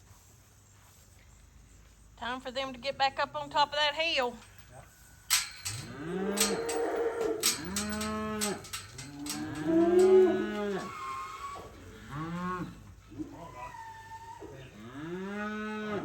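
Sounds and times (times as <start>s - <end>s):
calves bawling: 5.3s - 16.0s.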